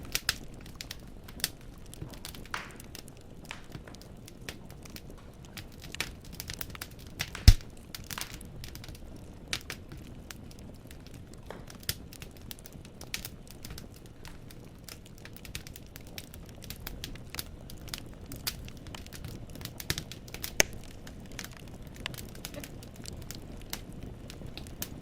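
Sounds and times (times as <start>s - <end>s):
firewood crackling: 0.0s - 25.0s
low steady fire noise: 0.0s - 25.0s
loud fire pop: 7.4s - 7.7s, 20.6s - 21.0s.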